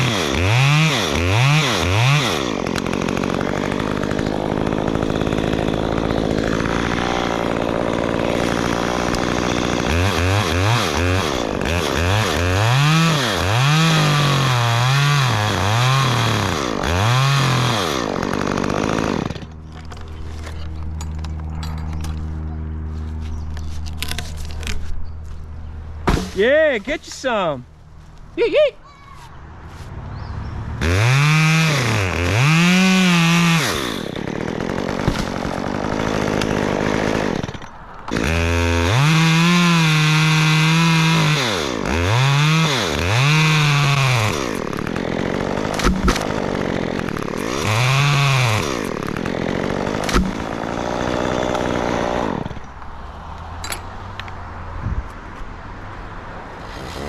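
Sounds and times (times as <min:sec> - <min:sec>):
chainsaw revving: 0:00.0 - 0:21.5, 0:30.7 - 0:52.7, 0:56.6 - 0:57.0.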